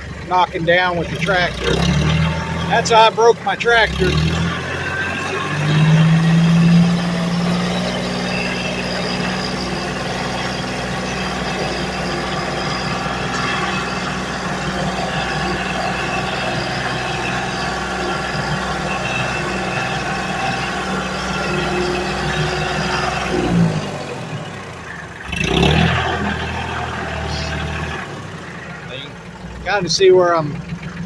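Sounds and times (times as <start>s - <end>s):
vehicle engine running low: 0.0s - 31.0s.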